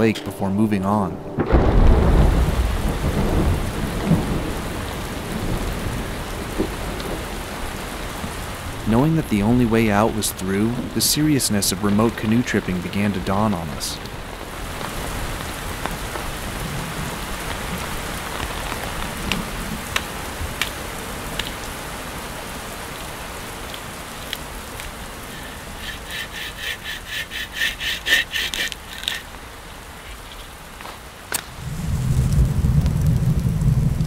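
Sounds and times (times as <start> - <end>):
steady rain: 1.5 - 34.0
hand saw cutting wood: 24.2 - 29.4.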